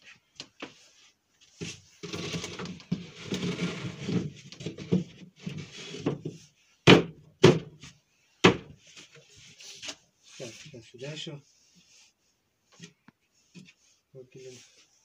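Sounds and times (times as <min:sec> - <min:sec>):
wood scraping and rubbing: 0:00.6 - 0:06.6
sharp wooden knocks: 0:06.9 - 0:07.7.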